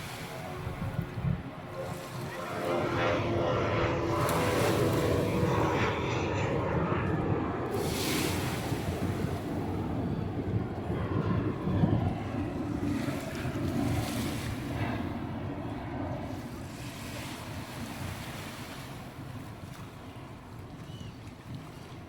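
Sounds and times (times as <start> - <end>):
small waves washing onto beach: 0.0 - 2.9, 7.7 - 10.1
wind on microphone: 0.0 - 19.4.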